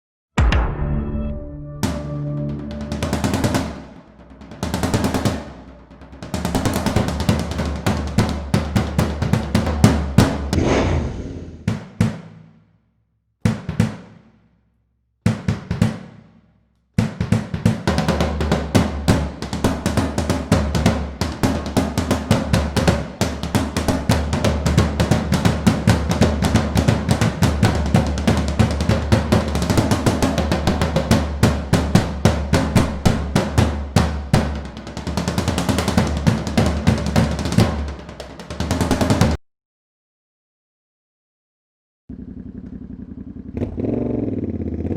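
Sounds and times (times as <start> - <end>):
loud motorcycle engine running: 42.1 - 44.8.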